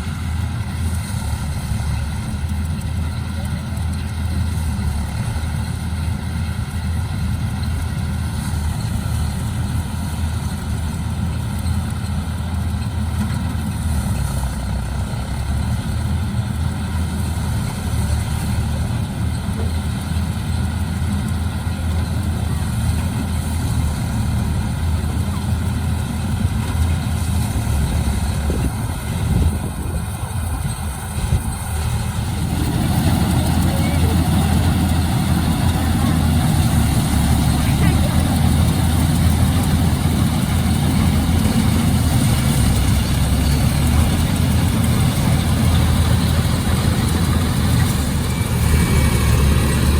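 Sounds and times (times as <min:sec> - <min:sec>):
harvesting machine engine drone: 0:00.0 - 0:49.9
steady machinery tones: 0:15.3 - 0:49.9.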